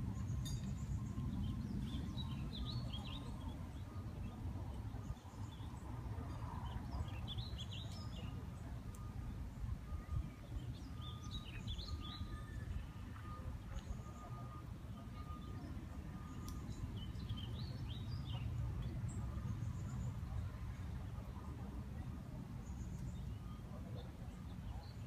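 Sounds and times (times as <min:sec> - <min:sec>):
songbird chirping: 0:00.0 - 0:25.0.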